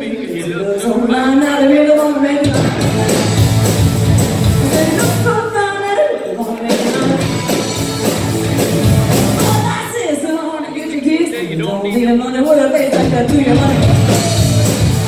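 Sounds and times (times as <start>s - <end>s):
rock band playing live: 1.4s - 15.0s
drum beat: 2.5s - 5.4s, 6.4s - 10.1s, 11.9s - 15.0s
person singing: 4.6s - 7.8s, 9.3s - 10.9s, 12.0s - 15.0s.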